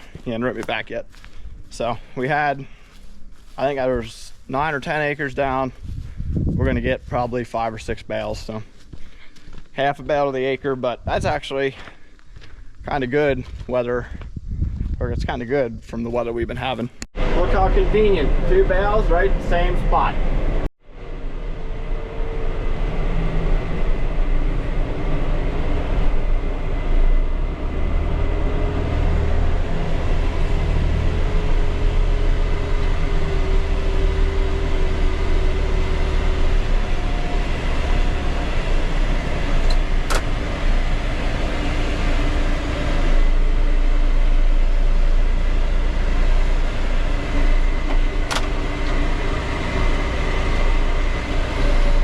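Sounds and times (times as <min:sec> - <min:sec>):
tractor engine running: 0:00.0 - 0:12.0, 0:16.6 - 0:52.0.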